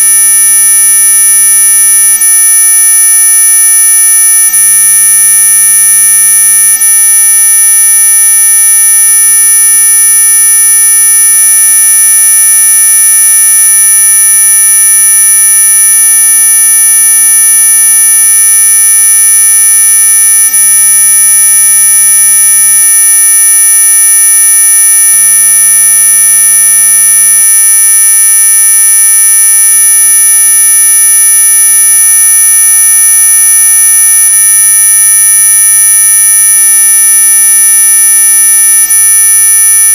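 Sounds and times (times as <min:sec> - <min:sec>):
shrill electronic buzz tone: 0:31.3 - 0:39.9.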